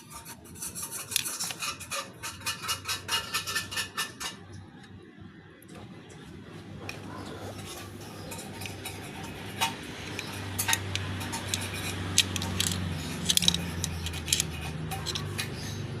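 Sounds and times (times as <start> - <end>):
metallic clinks and taps: 8.3 - 15.7.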